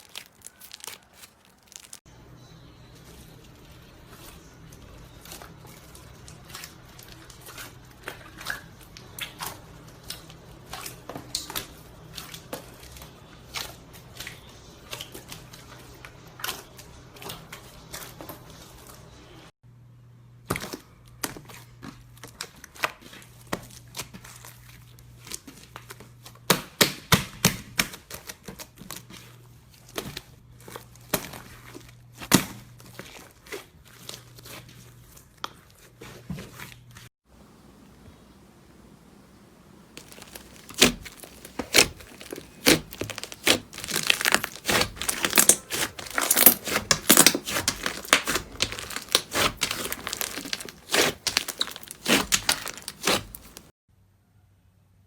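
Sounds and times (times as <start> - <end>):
faint steady hum: 37.3 - 40.0
slime clicking and popping: 40.0 - 53.6.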